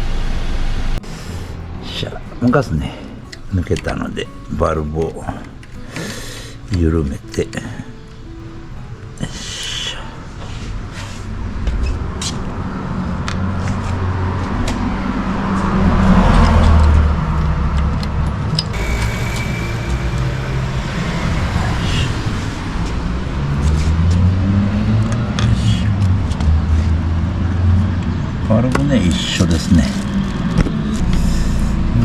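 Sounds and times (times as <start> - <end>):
vehicle engine running: 0.0 - 3.6, 10.3 - 32.0.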